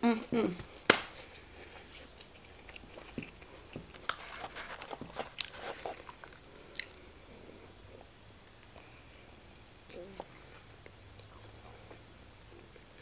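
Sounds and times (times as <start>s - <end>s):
chewing: 2.2s - 7.3s.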